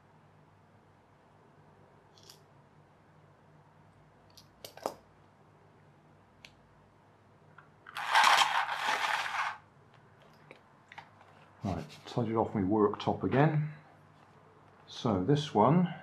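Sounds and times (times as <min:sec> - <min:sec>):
debris clattering and scraping: 0:07.9 - 0:09.6.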